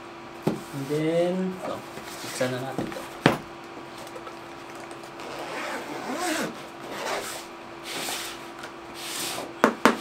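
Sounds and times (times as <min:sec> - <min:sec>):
zipper being pulled open: 0:05.2 - 0:07.5.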